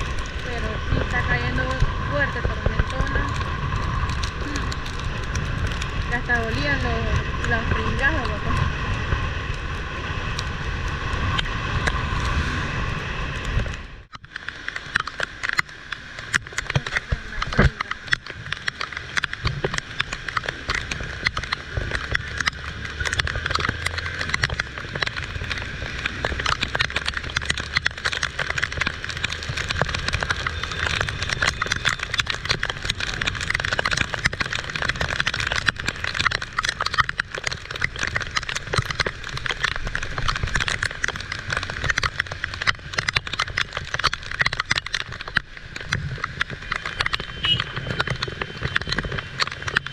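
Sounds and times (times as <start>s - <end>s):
heavy rain pattering: 0.0s - 49.9s
low rumble: 0.0s - 49.9s.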